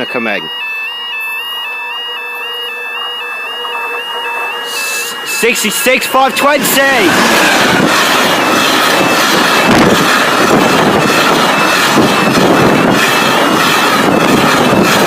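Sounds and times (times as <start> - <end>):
freight train wheels rumbling: 2.8 - 15.0.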